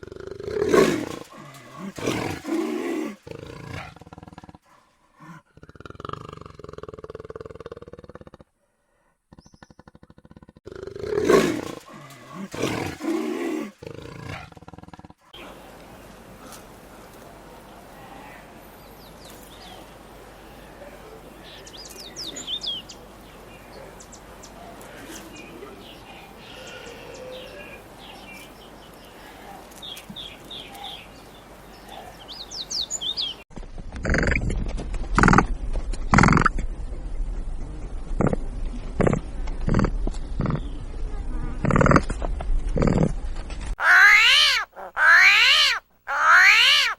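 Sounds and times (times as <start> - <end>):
wild cat growling and roaring: 0.0 - 8.5, 9.3 - 15.4
low outdoor background: 0.0 - 46.9
small birds chirping: 9.3 - 10.1, 18.7 - 33.5, 43.8 - 46.9
large animal calling loudly: 43.8 - 46.9.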